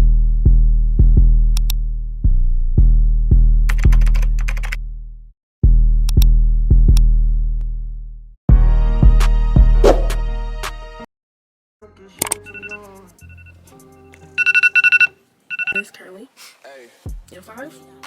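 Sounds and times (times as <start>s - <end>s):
hip-hop drum machine beat: 17.1s - 17.4s.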